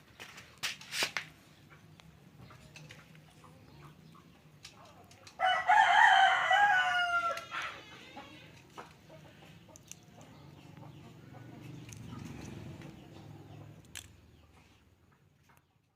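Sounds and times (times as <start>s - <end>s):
rooster crowing: 5.4s - 8.4s.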